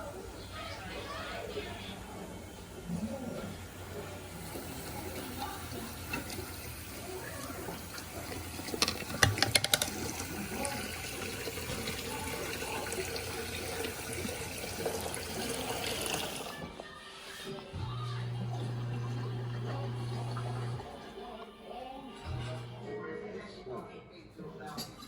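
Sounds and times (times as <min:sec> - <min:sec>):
water running into a sink: 0:00.0 - 0:22.8.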